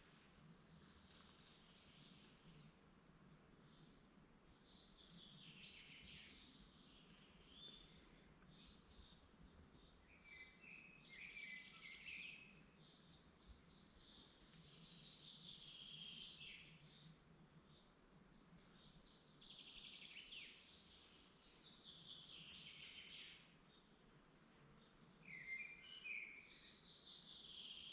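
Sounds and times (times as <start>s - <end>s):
faint songbirds singing: 0.0s - 27.9s.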